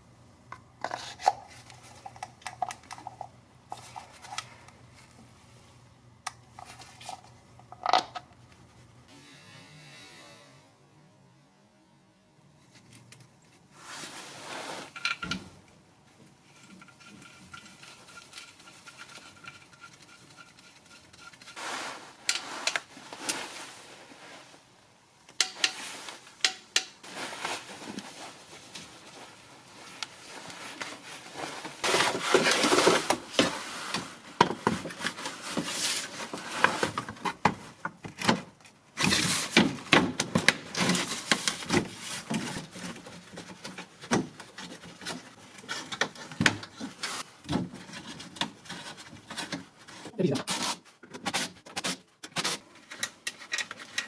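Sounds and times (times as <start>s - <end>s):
rubbing scrapes: 13.8s - 15.0s
tools clicking and knocking: 25.3s - 25.8s, 26.4s - 27.0s, 52.2s - 54.0s.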